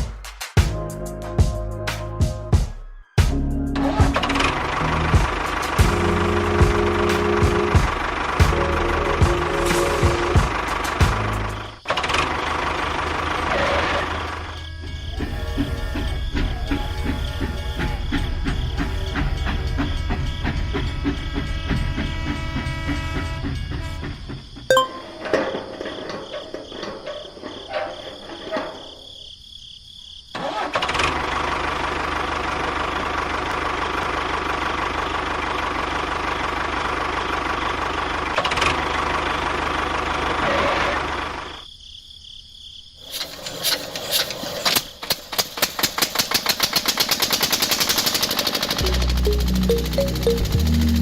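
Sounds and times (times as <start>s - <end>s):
small engine putt-putting: 43.1s - 51.0s.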